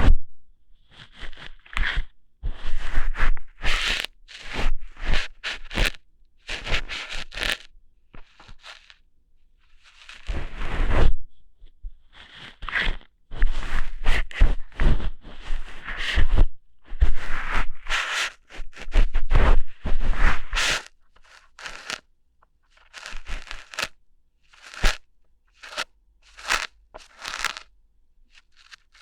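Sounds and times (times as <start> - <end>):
crackly scratchy rustles: 3.7 - 9.0, 9.7 - 10.7, 20.2 - 22.1, 22.7 - 27.7, 28.3 - 29.0.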